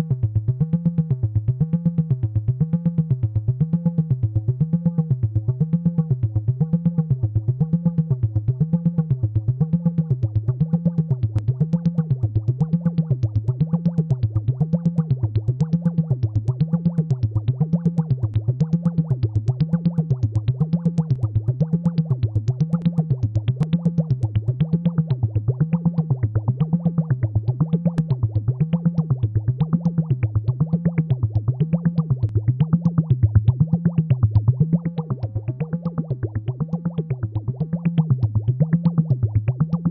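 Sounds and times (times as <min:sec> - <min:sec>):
fast pulsing synth rhythm: 0:10.6 - 0:39.9
synthesizer wobbling low tone: 0:22.6 - 0:39.9.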